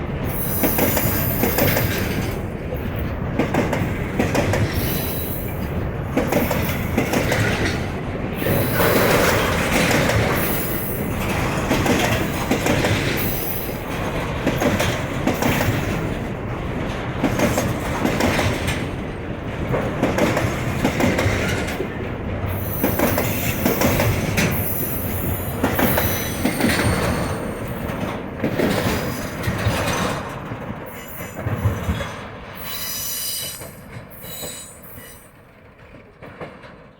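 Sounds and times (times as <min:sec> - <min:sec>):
train wheels clattering on rails: 0:00.0 - 0:36.9
train wheels squealing: 0:00.3 - 0:02.3, 0:04.7 - 0:05.7, 0:08.4 - 0:09.6, 0:10.3 - 0:11.1, 0:13.2 - 0:13.8, 0:22.5 - 0:27.9, 0:28.8 - 0:30.1, 0:30.9 - 0:35.4.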